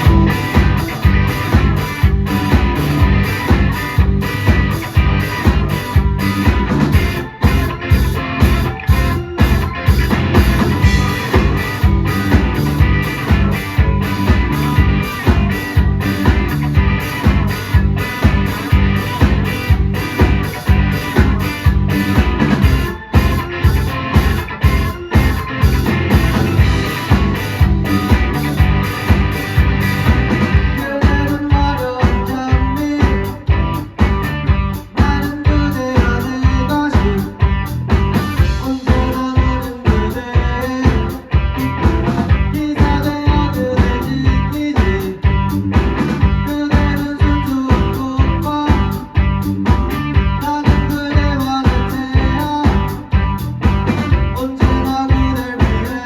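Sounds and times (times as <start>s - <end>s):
electric guitar: 0.0s - 56.0s
steady drum beat: 0.0s - 56.0s.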